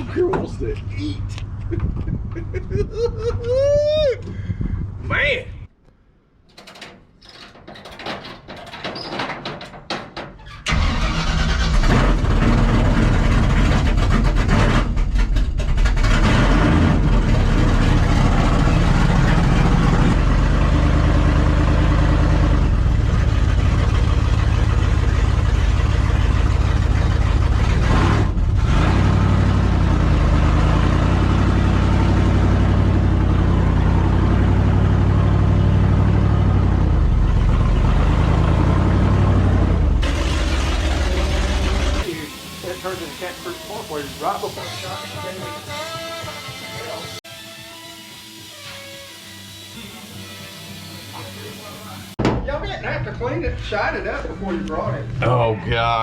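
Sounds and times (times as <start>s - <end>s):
knocks: 6.5s - 10.4s, 52.2s - 52.5s
truck engine running loud: 10.7s - 44.6s.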